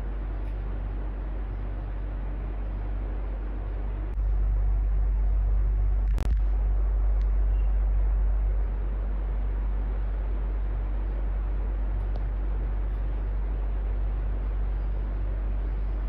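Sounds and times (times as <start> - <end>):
electric fan running: 0.0 - 16.0.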